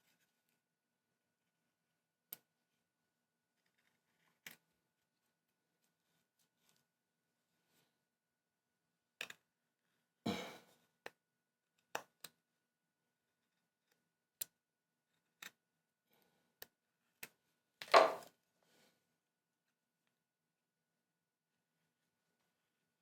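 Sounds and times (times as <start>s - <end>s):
knocks on wood: 17.9s - 18.2s.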